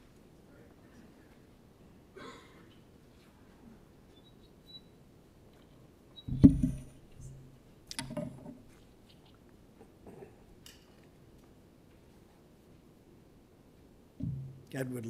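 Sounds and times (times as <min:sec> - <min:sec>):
knocks and rustles on microphone: 0:06.3 - 0:07.4
microphone handling thump: 0:06.3 - 0:07.4, 0:14.2 - 0:14.6.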